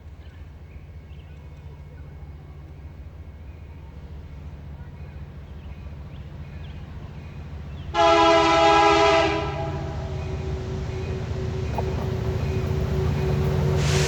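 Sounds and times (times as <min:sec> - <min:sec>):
locomotive rumble: 0:00.0 - 0:14.0
train air horn chord: 0:08.0 - 0:10.4, 0:13.1 - 0:14.0.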